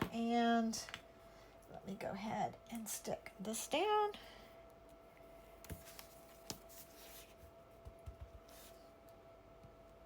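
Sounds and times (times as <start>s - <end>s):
faint steady hum: 0.0s - 10.0s
paper rustling: 5.7s - 7.4s.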